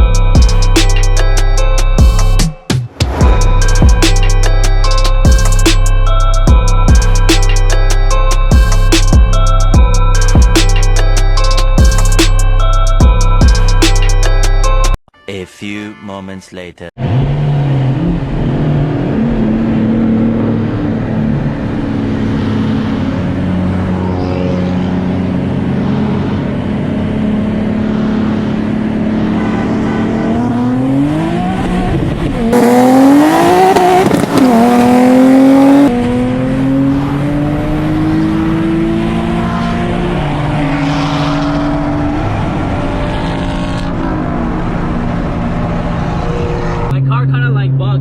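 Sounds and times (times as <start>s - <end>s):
car engine accelerating: 17.0s - 47.0s.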